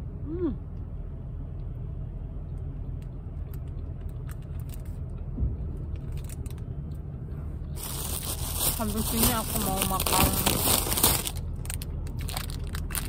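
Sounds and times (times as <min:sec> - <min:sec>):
plastic wrapper crinkling: 0:07.8 - 0:13.0.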